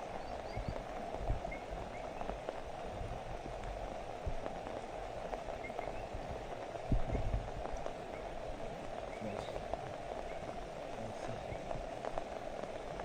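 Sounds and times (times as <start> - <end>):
steady rain falling: 0.0 - 13.0
faint high chirps: 5.6 - 6.4.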